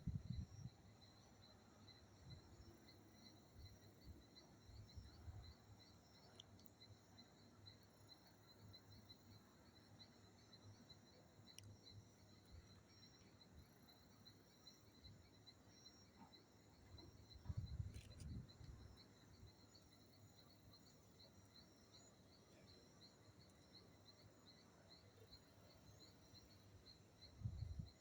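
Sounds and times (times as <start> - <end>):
insect chirping: 0.0 - 28.0.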